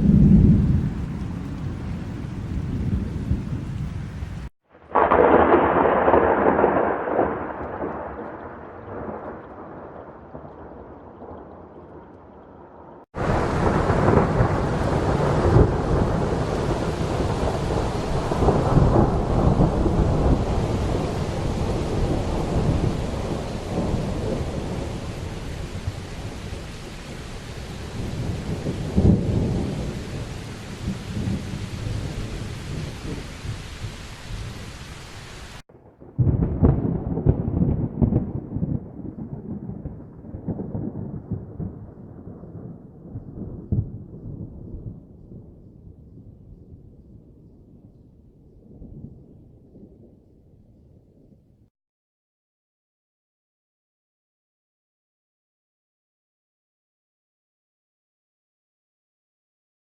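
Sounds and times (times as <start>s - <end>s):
thunderclap: 0.0s - 12.4s, 13.2s - 34.7s, 35.6s - 50.5s
rolling thunder: 0.0s - 34.8s, 35.6s - 51.5s
steady rain: 0.0s - 47.9s.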